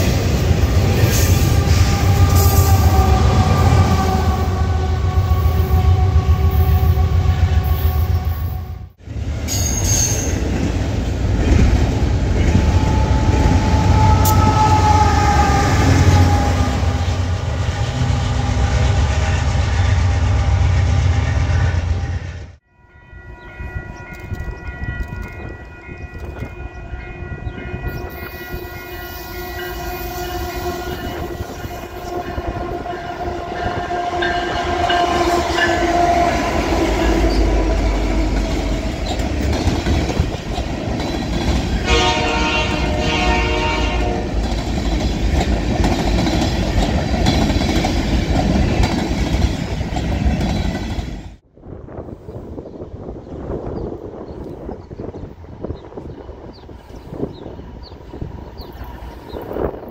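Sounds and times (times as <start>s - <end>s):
diesel locomotive running: 0.0s - 59.9s
freight train rumbling past: 0.0s - 59.9s
train air horn: 1.0s - 9.0s, 12.4s - 22.5s, 25.6s - 38.6s, 41.8s - 44.4s.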